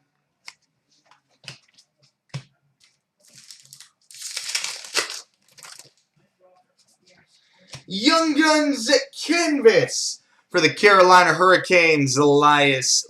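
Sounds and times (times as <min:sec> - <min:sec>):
cards rustling and sliding: 0:02.8 - 0:06.0.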